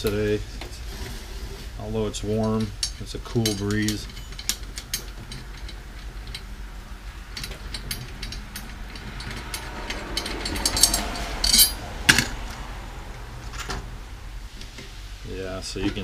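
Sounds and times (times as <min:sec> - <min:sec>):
drum tension rods unscrewing: 0:00.0 - 0:12.6
metal drum parts clinking: 0:01.8 - 0:06.6, 0:07.2 - 0:12.4.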